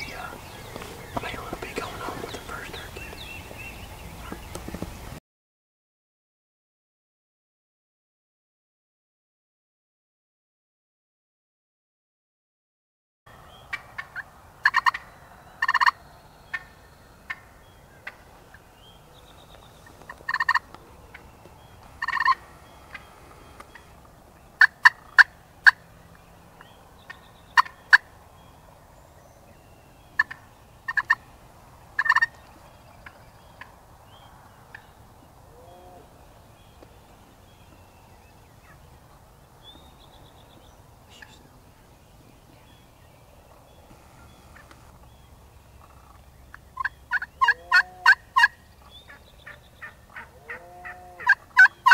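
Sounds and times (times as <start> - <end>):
wild turkey gobbling: 13.7 - 18.7, 19.8 - 24.0, 24.6 - 25.9, 27.0 - 28.1, 30.2 - 31.2, 32.0 - 33.8, 45.8 - 51.9.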